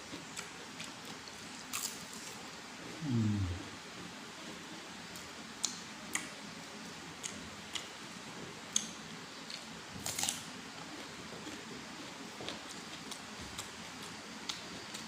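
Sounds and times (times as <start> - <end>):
person chewing crunchy food: 9.5 - 15.0.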